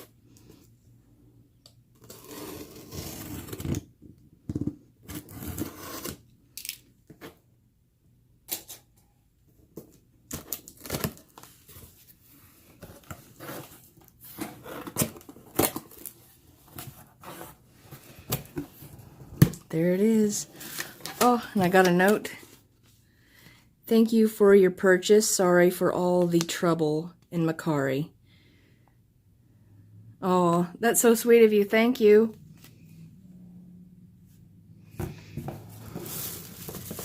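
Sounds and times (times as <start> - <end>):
packaging tearing and rustling: 10.3 - 11.8, 35.8 - 37.0.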